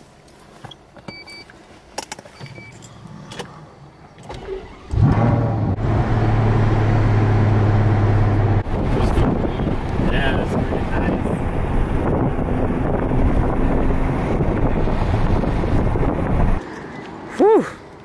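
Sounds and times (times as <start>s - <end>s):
short electronic beeps: 2.4s - 2.8s
car engine starting and idling: 2.6s - 16.6s.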